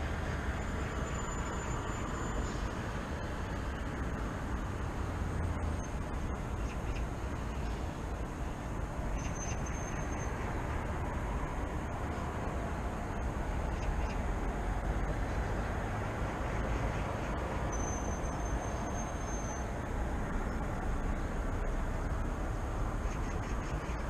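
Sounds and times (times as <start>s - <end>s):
road traffic rumble: 0.0s - 24.0s
high whistle-like tone: 17.7s - 19.7s.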